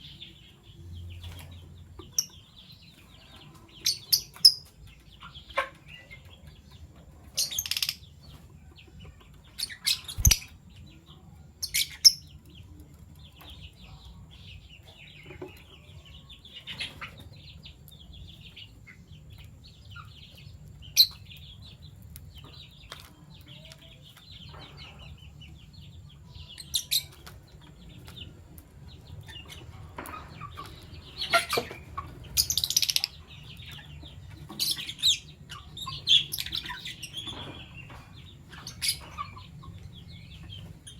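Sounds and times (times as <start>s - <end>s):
birds twittering: 0.0s - 40.9s
lovebirds chirping shrilly: 7.4s - 8.1s, 9.5s - 10.6s, 31.0s - 37.8s.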